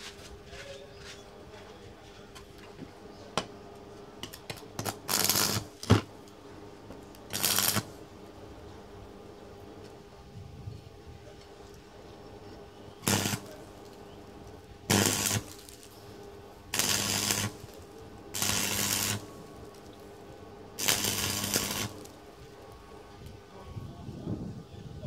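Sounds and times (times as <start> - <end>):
low electrical welder buzz: 1.3 - 24.6
arc welding crackle: 3.7 - 8.4, 11.4 - 23.5.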